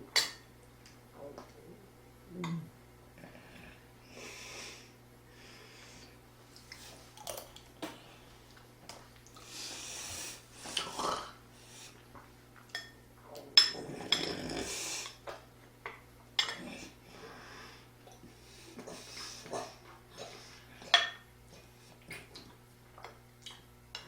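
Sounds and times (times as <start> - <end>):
heavy breathing: 16.8 - 20.8.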